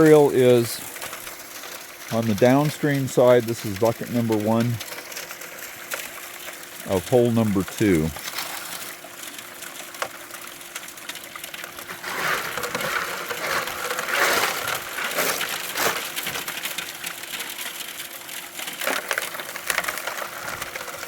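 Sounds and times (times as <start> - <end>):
shovel crunching and scraping gravel: 11.8 - 17.1.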